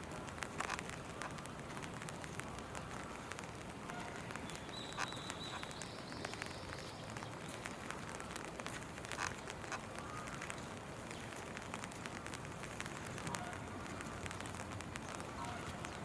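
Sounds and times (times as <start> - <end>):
drops ticking close by: 0.0 - 16.0
steady rain falling: 0.0 - 16.0.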